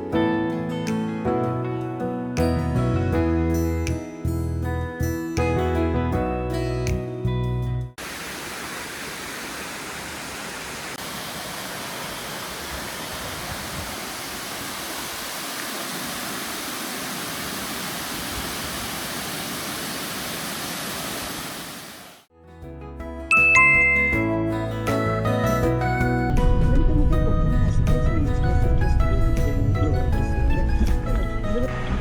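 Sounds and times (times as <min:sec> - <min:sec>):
background music: 0:00.0 - 0:07.9, 0:22.4 - 0:32.0
waterfall rushing: 0:08.0 - 0:22.3.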